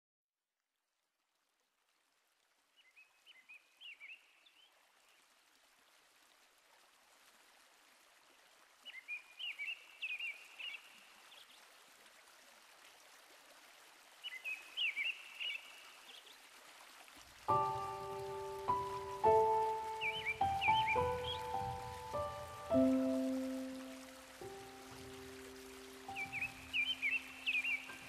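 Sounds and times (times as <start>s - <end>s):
soft running water: 1.0s - 28.0s
songbird chirping: 2.8s - 4.7s, 8.8s - 11.6s, 14.2s - 16.4s, 17.5s - 28.0s.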